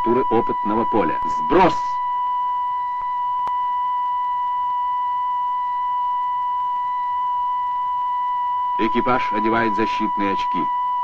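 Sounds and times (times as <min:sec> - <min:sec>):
high electronic tone: 0:00.0 - 0:02.2, 0:08.6 - 0:10.7.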